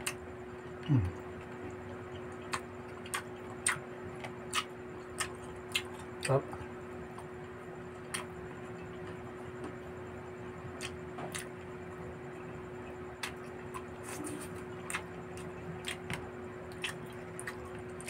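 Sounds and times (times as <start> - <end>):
faint steady hum: 0.0 - 18.0
person chewing with mouth smacking: 2.2 - 6.4, 10.8 - 11.5, 13.2 - 18.0.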